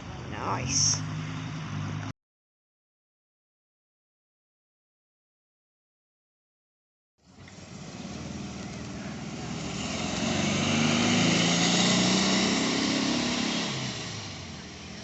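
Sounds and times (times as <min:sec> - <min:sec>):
car accelerating past: 0:07.2 - 0:15.0.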